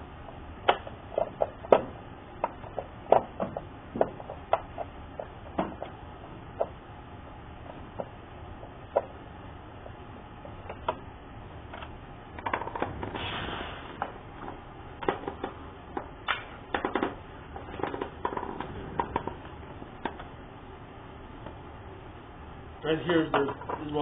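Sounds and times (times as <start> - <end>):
plastic parts clicking and knocking: 0.6 - 6.0, 11.7 - 13.1, 14.0 - 20.3, 23.3 - 24.0.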